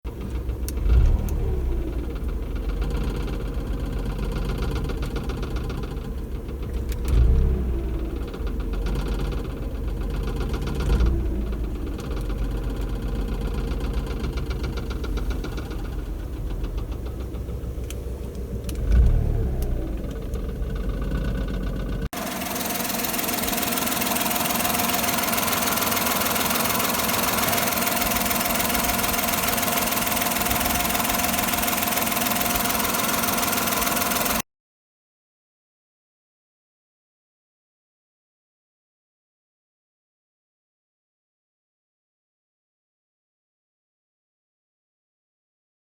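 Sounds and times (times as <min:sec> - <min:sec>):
car engine running: 0:00.1 - 0:34.4
air intake duct rattling: 0:08.2 - 0:19.0, 0:20.0 - 0:34.4.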